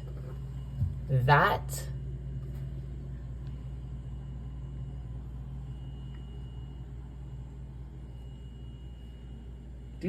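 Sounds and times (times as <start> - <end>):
low electrical motor hum: 0.0 - 10.0.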